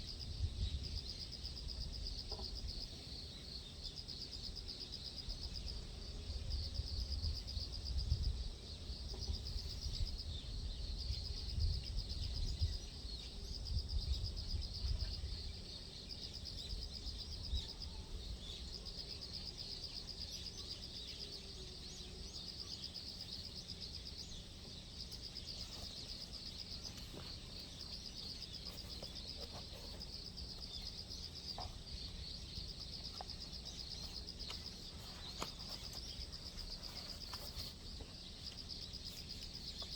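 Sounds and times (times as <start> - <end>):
wind rumble on microphone: 0.0 - 2.2, 6.4 - 15.6
insects trilling: 0.0 - 39.9.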